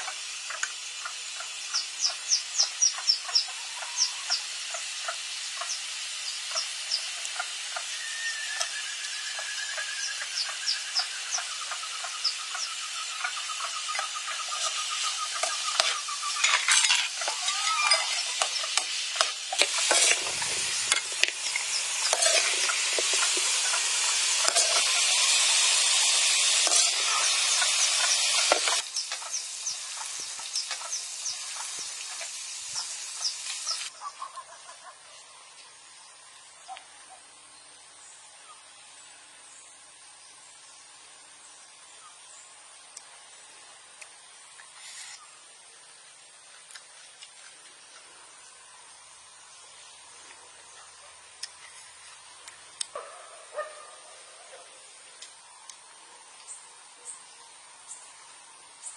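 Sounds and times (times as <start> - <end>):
meat sizzling in a wok: 0.0 - 36.7, 37.3 - 46.4, 47.5 - 50.2, 50.9 - 58.9
spatula scraping and clinking: 15.4 - 18.5, 19.2 - 23.5, 24.4 - 24.9, 26.6 - 27.1.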